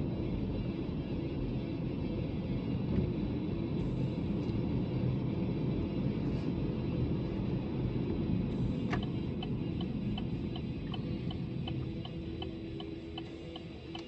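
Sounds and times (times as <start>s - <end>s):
car cabin road rumble: 0.0s - 14.0s
turn signal ticking: 7.4s - 14.0s
click: 10.9s - 14.0s.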